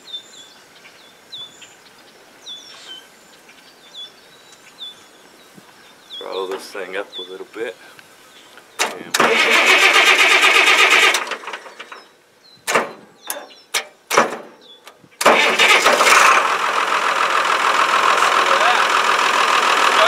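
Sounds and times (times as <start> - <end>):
sharp clunks: 8.8 - 9.3, 12.7 - 15.4
tractor engine cranking: 8.8 - 12.1, 12.7 - 20.0
tractor engine running: 8.8 - 12.1, 12.7 - 20.0.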